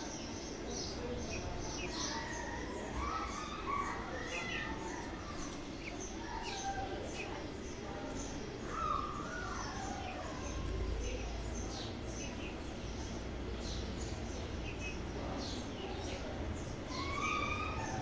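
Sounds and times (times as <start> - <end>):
parrot chicks chirping: 0.0 - 18.0.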